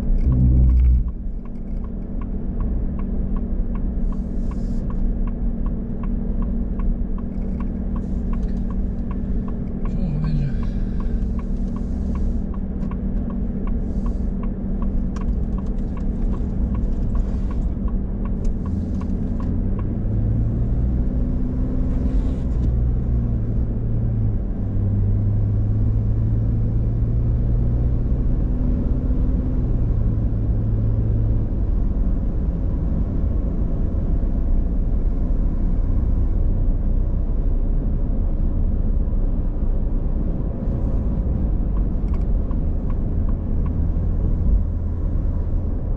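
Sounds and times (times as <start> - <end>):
car engine and road noise: 0.0 - 45.9
light regular ticking: 0.1 - 20.0.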